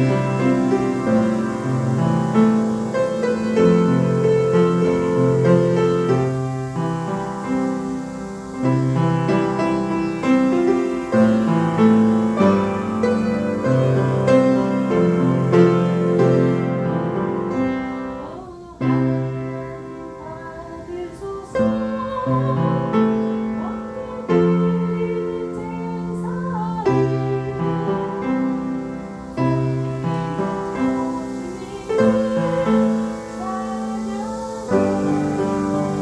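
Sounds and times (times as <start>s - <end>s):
faint voice singing: 0.0s - 36.0s
piano playing slow chords: 0.0s - 36.0s.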